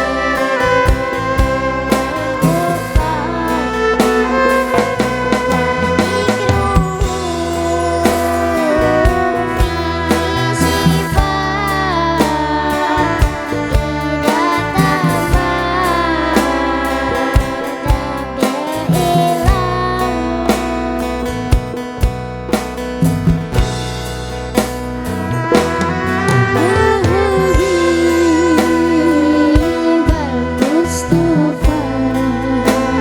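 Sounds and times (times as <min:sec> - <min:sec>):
drum beat: 0:00.0 - 0:11.7, 0:21.6 - 0:32.0
plucked guitar chords: 0:00.0 - 0:33.0
gliding wavering vocal melody: 0:02.4 - 0:20.4, 0:26.5 - 0:33.0.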